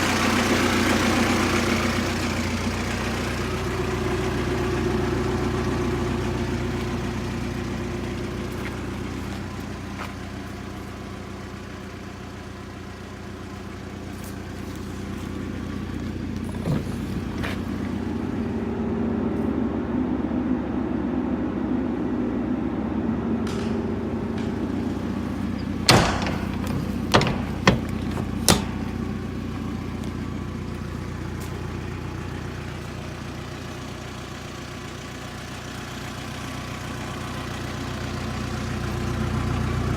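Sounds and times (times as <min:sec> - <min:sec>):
truck engine idling: 0:00.0 - 0:39.9
sharp knocks: 0:25.6 - 0:29.0.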